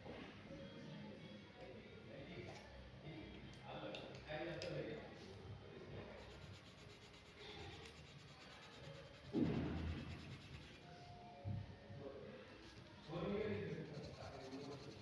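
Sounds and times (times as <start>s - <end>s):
pen scratching on paper: 6.2s - 10.8s, 13.8s - 15.0s.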